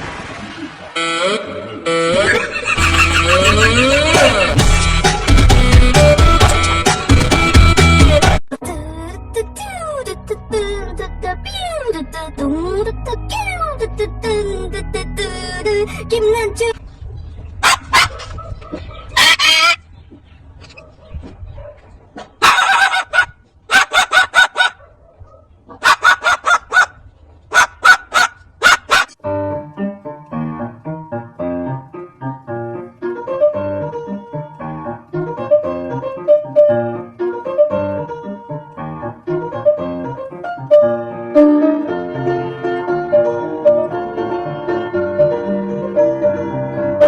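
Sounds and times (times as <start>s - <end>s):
bird harsh repeated calls: 1.0s - 4.6s, 17.5s - 20.9s, 22.4s - 24.8s, 27.5s - 29.2s
piano music: 8.9s - 16.8s, 29.2s - 47.0s.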